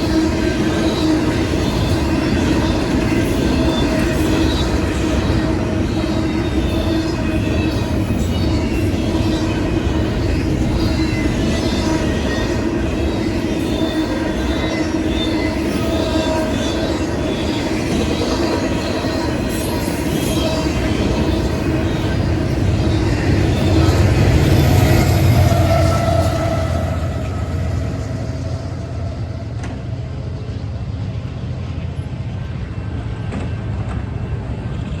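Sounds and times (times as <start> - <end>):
train wheels rumbling on rails: 0.0 - 35.0
high wheel squeals: 19.0 - 29.6.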